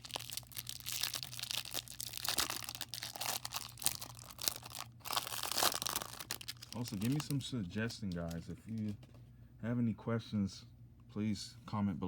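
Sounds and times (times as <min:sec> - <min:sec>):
wrapper tearing and crumpling: 0:00.0 - 0:07.4.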